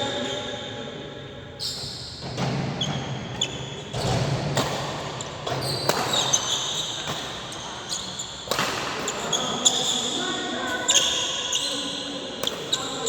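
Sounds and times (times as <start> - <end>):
shoes squeaking on court: 1.6 - 4.2, 5.2 - 13.0.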